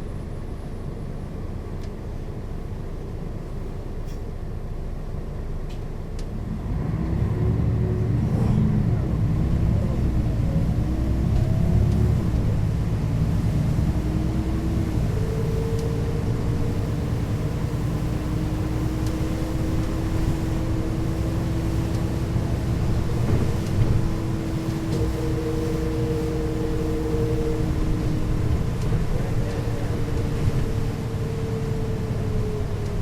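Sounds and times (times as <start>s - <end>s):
bus engine rumble: 0.0s - 33.0s
steady whine: 8.3s - 33.0s.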